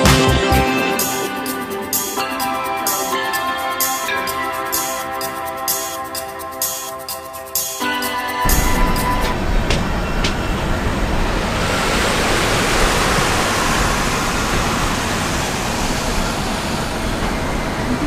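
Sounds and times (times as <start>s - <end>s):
train wind and rail noise: 7.8s - 18.0s.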